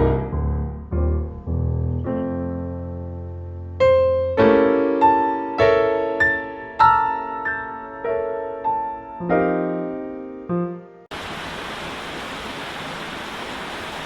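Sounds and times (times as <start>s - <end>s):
gentle piano melody: 0.0s - 11.1s.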